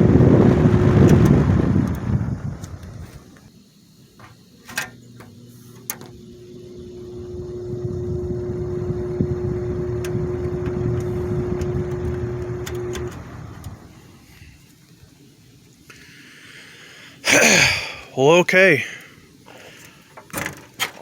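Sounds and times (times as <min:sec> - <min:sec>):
fan motor hum and air rush: 0:00.0 - 0:20.6
fan switch click: 0:10.0 - 0:13.8.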